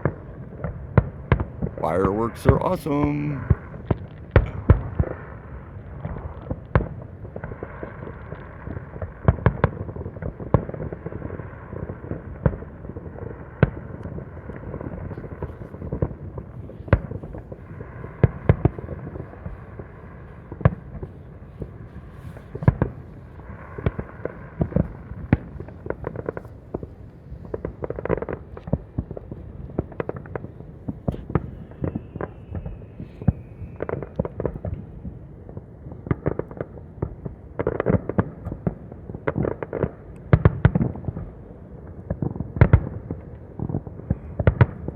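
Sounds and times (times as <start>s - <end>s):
fireworks bangs: 0.0s - 9.9s, 10.5s - 35.2s
distant fireworks rumble and crackle: 0.0s - 44.9s.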